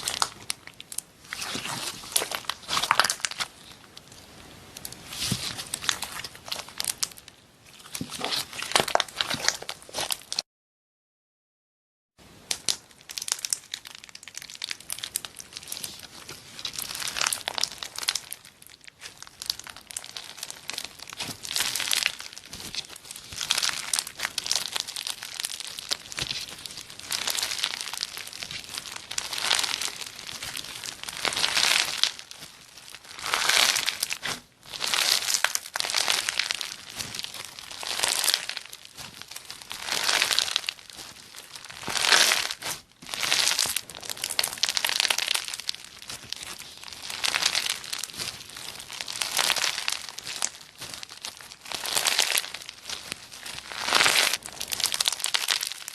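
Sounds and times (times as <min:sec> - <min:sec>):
slime squeezed by hand crackling: 0:00.0 - 0:10.4, 0:12.4 - 0:55.9.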